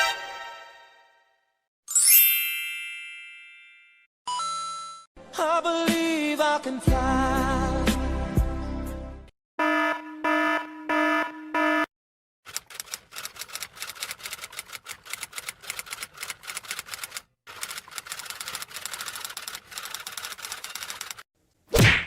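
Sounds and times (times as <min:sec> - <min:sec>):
pitched electronic beeps: 0:09.6 - 0:11.9.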